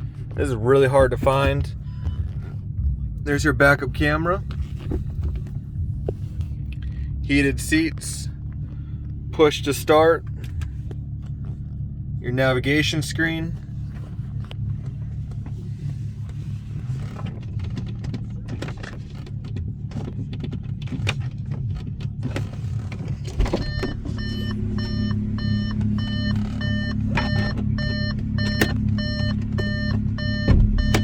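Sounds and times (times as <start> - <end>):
car engine idling: 0.0 - 31.0
multi-tone warning chime: 23.6 - 31.0.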